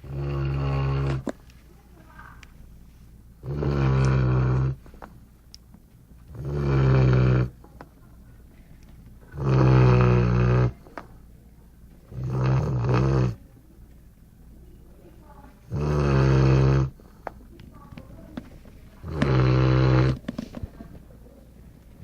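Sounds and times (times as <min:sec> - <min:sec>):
dog snoring: 0:00.0 - 0:01.4, 0:03.4 - 0:04.9, 0:06.3 - 0:07.6, 0:09.3 - 0:10.9, 0:12.0 - 0:13.4, 0:15.6 - 0:17.1, 0:19.0 - 0:20.5.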